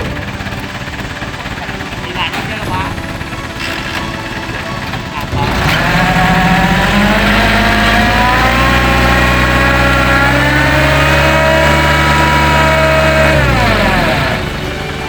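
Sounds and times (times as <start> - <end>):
truck engine revving high: 0.0 - 15.0.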